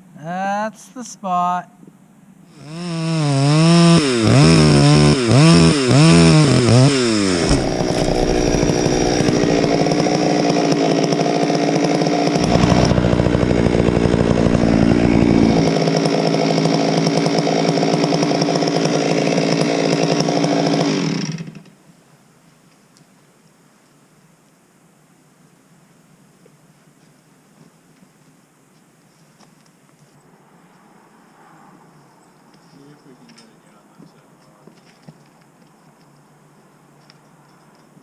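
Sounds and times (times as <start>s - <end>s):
chainsaw revving: 2.5s - 21.6s
deep low rumble: 7.4s - 10.6s, 12.4s - 15.7s.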